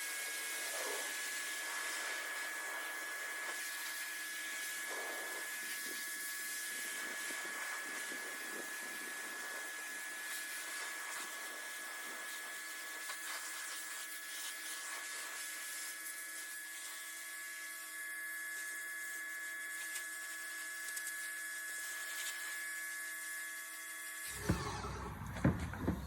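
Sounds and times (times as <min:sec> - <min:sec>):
low thumps: 0:24.3 - 0:26.0
pressure washer motor whine: 0:24.3 - 0:26.0.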